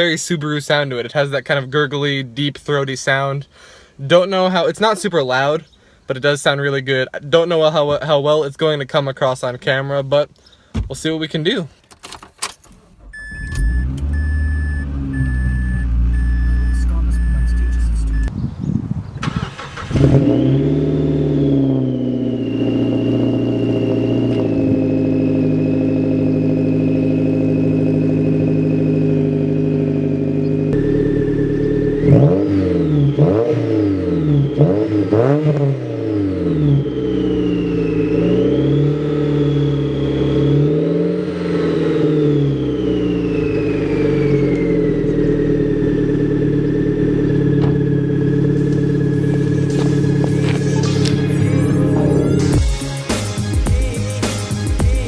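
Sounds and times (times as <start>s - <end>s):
car engine starting and revving: 12.1s - 55.0s.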